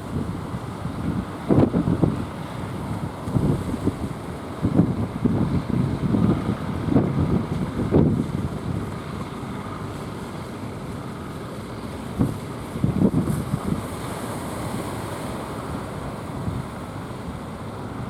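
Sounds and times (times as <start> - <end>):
wind buffeting microphone: 0.0 - 9.3, 12.1 - 15.0
sea surf rushing: 0.0 - 18.0.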